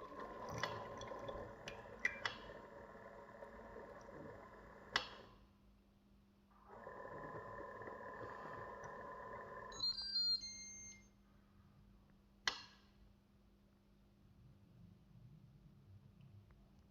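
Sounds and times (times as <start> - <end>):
high electronic beeps: 9.7 - 11.1.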